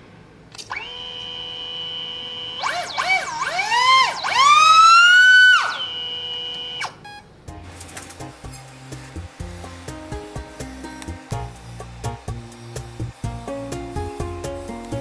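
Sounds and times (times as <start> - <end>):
small motor and propeller whining: 0.6 - 9.9.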